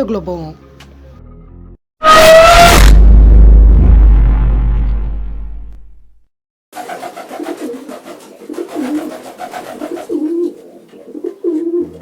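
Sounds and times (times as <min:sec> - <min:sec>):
pigeons cooing: 0:06.8 - 0:12.0.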